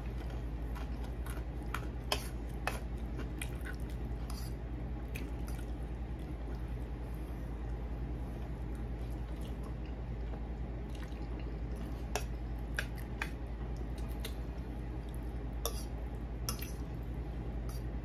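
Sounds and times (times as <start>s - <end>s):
person chewing food: 0.0s - 17.1s
steady low hum: 0.0s - 18.0s.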